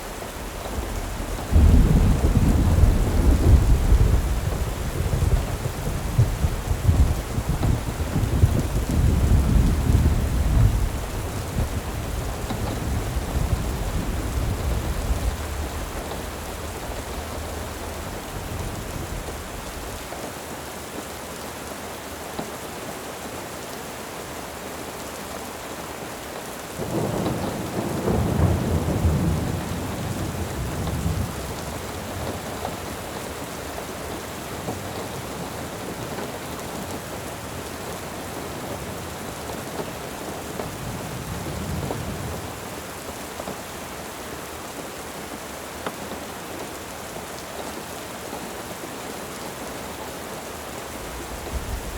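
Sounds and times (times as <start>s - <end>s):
steady rain: 0.0s - 51.9s
rolling thunder: 0.1s - 20.0s, 26.8s - 32.4s, 51.0s - 51.9s.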